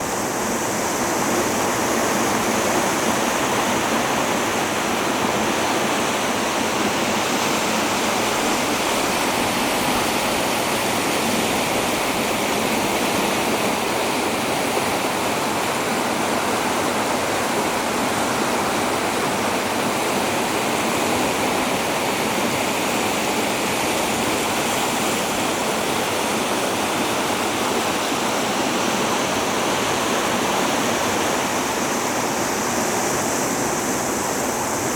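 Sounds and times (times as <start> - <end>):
rushing river in flood: 0.0 - 34.9.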